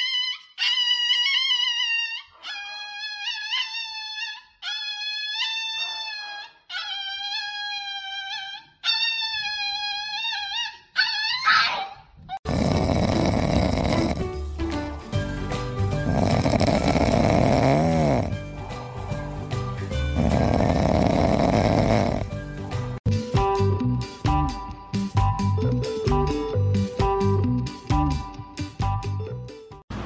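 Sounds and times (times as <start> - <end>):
puppy snoring: 12.4 - 14.4, 15.9 - 23.0.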